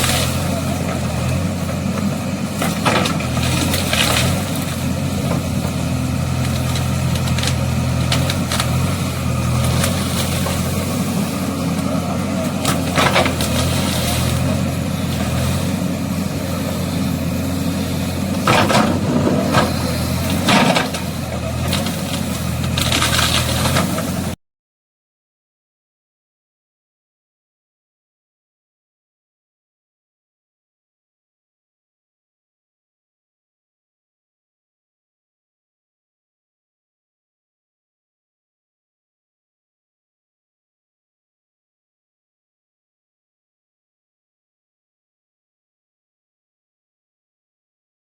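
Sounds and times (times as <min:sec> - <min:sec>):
vehicle engine idling: 0:00.3 - 0:24.4.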